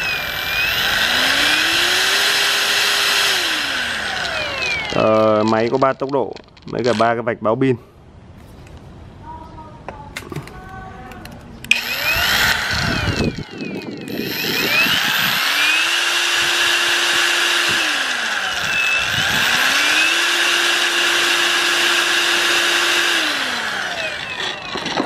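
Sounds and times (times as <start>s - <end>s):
angle grinder whining: 0.0s - 6.1s, 11.7s - 25.0s.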